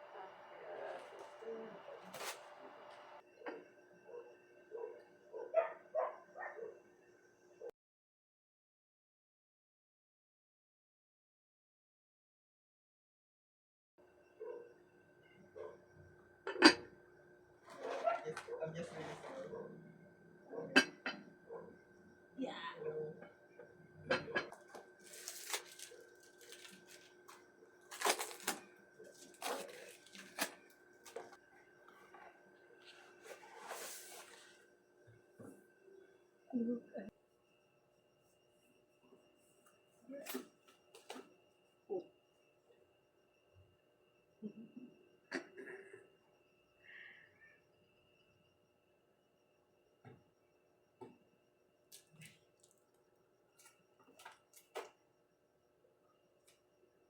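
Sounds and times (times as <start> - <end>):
dog yipping: 4.1 - 6.8.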